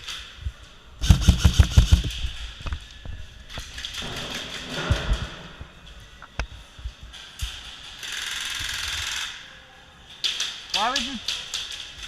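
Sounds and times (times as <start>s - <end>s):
heavy thumps: 1.0s - 2.2s
sharp taps and clicks: 1.0s - 2.2s.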